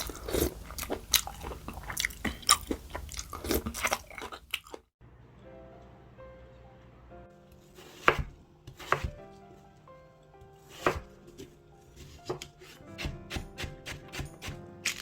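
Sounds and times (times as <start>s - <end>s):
soft background music: 5.0s - 15.0s
knife chopping on cutting board: 7.8s - 9.4s, 10.6s - 15.0s.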